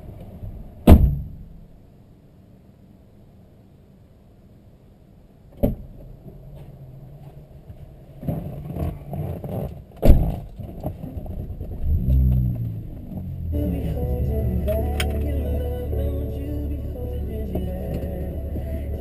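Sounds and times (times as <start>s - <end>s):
car engine revving: 11.8s - 19.0s.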